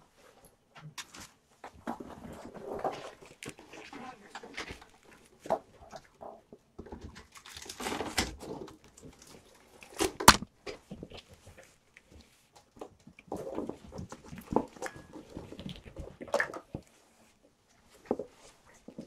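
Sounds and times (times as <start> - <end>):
kittens tapping and rustling: 0.7 - 19.0
sharp knock: 10.3 - 10.5.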